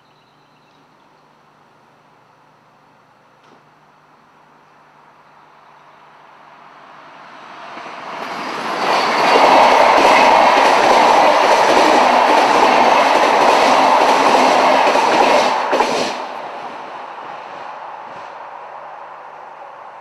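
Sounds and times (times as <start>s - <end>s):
electric train passing: 4.0s - 20.0s.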